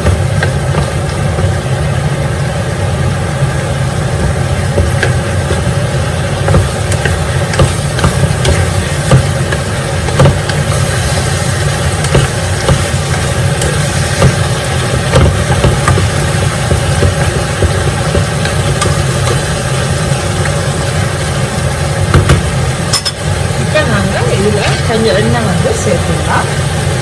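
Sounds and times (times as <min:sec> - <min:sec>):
fat sizzling in a pot: 0:00.0 - 0:27.0.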